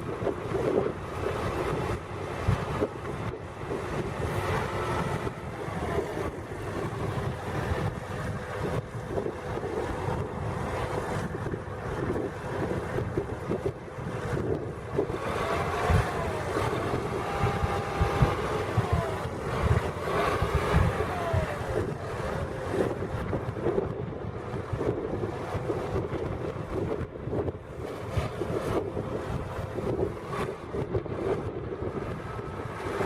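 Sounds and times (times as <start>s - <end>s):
tractor diesel engine running: 0.0s - 33.0s
wind noise on microphone: 0.0s - 33.0s.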